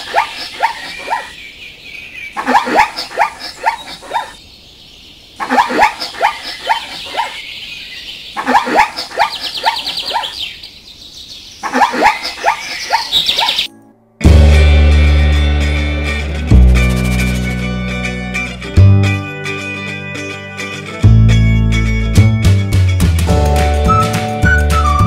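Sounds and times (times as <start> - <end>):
zebra calling: 5.4 - 7.4, 8.4 - 10.4.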